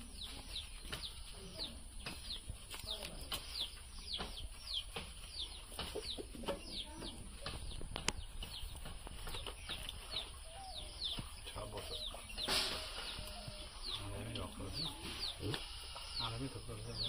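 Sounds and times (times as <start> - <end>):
birds chirping: 0.0 - 17.0
sharp knocks and thuds: 2.0 - 10.4.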